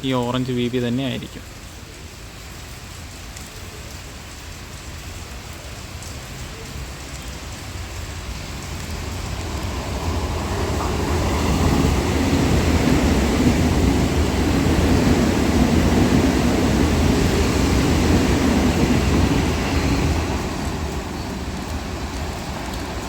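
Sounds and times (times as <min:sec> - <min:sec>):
heavy rain: 0:00.0 - 0:23.0
electric train rumble: 0:07.6 - 0:23.0.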